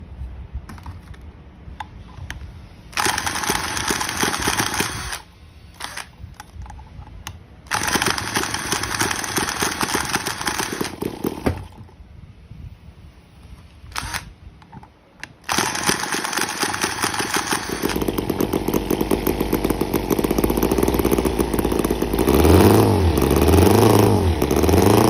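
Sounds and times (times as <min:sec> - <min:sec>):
engine running with ticking rattle: 0:16.6 - 0:25.0.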